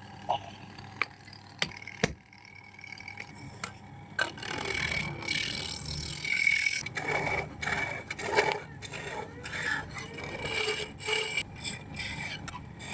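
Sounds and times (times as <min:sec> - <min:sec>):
tool cutting wood on a lathe: 0:04.3 - 0:12.9.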